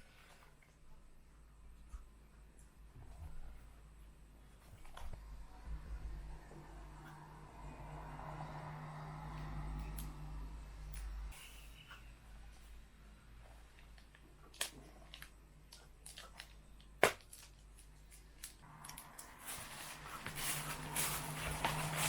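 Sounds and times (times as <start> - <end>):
packaging rustling: 13.8 - 22.0.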